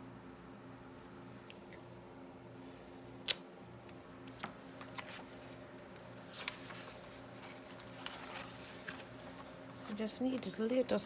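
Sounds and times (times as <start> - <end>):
steady low hum: 0.0 - 11.0
paper and craft supplies handled: 4.8 - 11.0.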